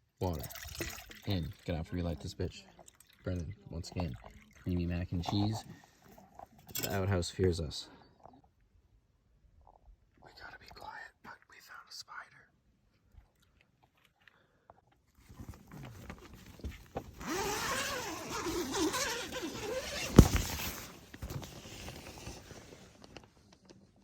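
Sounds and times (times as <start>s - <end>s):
rustling handling noise: 15.1s - 24.0s.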